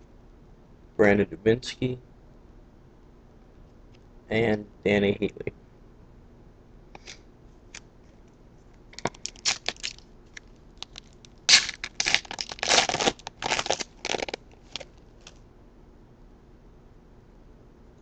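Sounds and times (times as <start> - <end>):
wrapper tearing and crinkling: 9.0 - 15.4.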